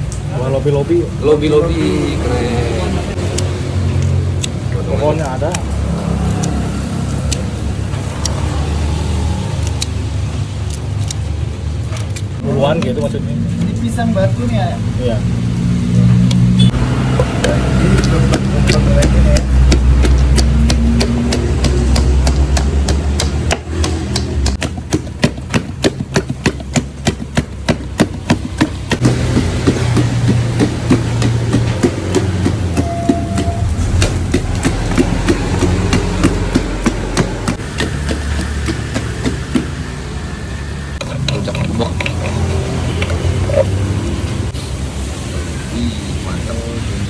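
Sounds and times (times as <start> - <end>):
vehicle engine rumbling: 0.0 - 47.0
pestle pounding fruit in a mortar: 16.7 - 44.2
sharp knocks: 17.1 - 40.0.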